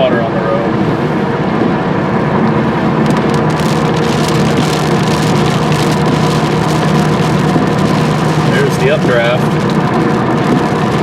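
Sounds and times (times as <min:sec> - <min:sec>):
car engine and road hum: 0:00.0 - 0:11.0
water striking car: 0:03.0 - 0:11.0.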